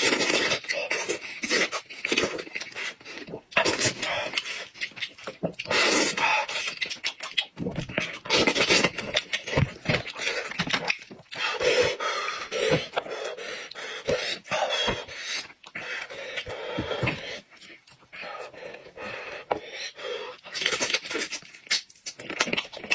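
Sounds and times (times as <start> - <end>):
person chewing with wet smacks: 0.0 - 18.9, 20.3 - 22.9
heavy breathing through nose: 11.3 - 20.6.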